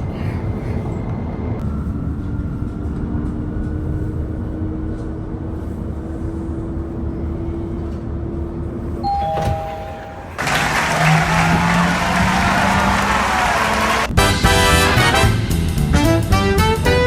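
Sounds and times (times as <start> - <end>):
two-note electronic chime: 9.0 - 11.2.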